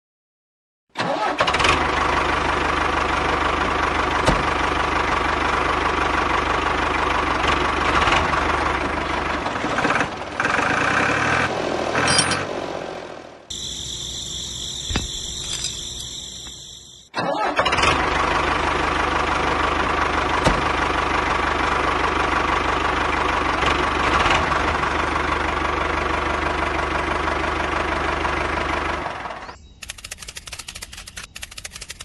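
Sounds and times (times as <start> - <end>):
engine starting and running: 0.9 - 32.0
high whine: 13.5 - 17.1.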